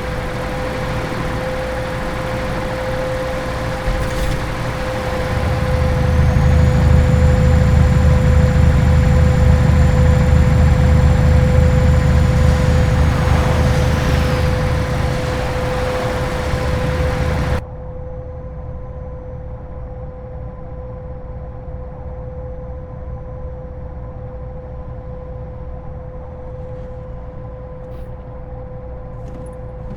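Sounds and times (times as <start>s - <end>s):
diesel engine droning: 0.0s - 17.6s, 29.2s - 29.9s.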